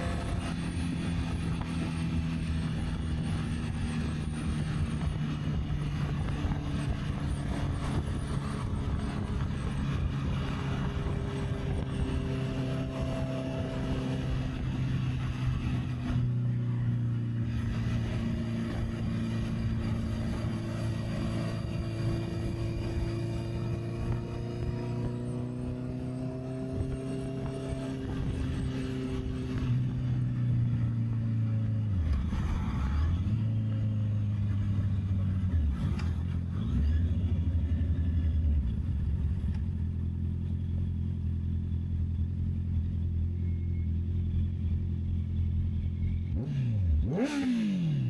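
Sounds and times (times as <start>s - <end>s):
wind rushing over microphone: 0.0s - 30.6s
motorcycle engine running: 0.0s - 48.0s.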